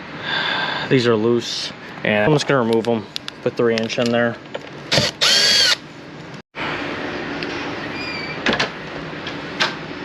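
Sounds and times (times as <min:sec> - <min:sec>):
power drill driving a screw: 0:04.9 - 0:05.8.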